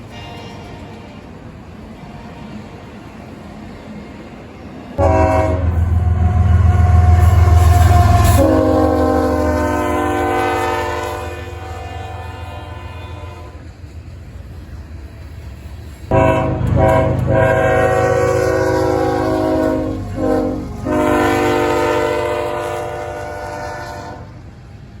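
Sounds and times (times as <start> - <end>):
freight train rumbling: 0.0 - 25.0
locomotive air horn blasts: 5.0 - 13.7, 16.1 - 24.4.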